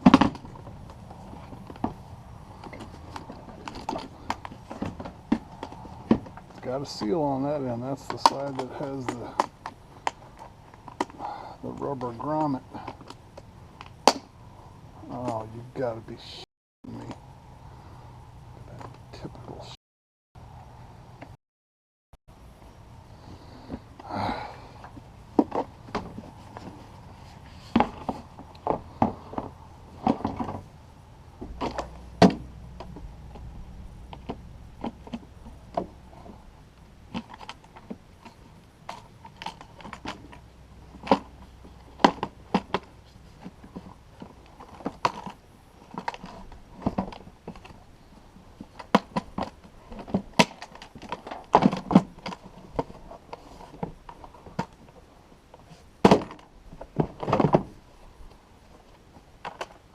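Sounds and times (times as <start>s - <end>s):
clicks and knocks of hard parts: 48.6s - 54.9s.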